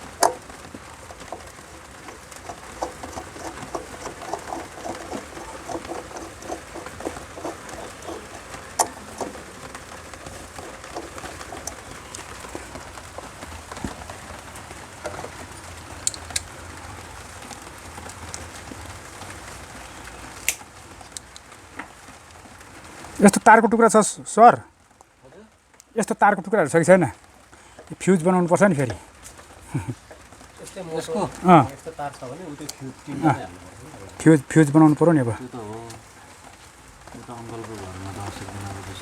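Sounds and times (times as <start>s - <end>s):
sharp clicks: 0.0s - 14.0s
pigeons cooing: 0.0s - 20.4s.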